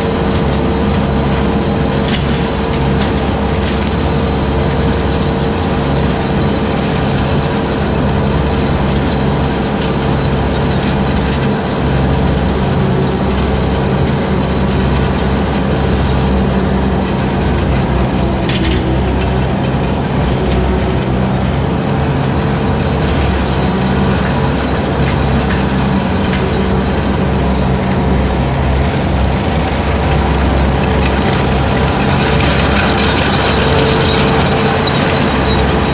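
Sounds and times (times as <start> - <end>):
skid steer engine running: 0.0 - 35.9
brush cutter cutting grass: 20.9 - 35.9.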